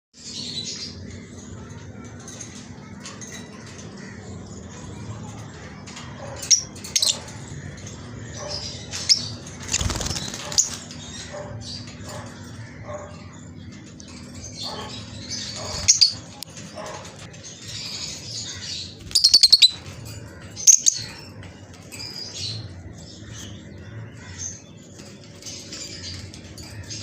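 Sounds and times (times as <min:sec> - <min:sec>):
birds chirping: 0:00.2 - 0:27.0
wing flapping: 0:09.6 - 0:11.0.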